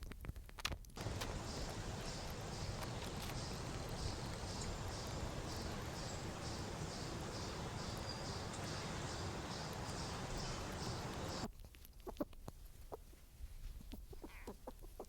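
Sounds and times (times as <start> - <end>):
faint high chirp: 1.0 - 11.5
steady rushing wash: 1.0 - 11.5.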